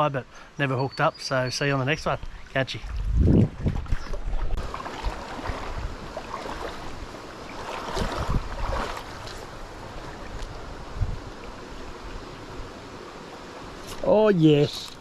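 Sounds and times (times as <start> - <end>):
wind buffeting microphone: 2.2 - 7.1, 7.8 - 12.3
creek water rushing: 3.9 - 15.0.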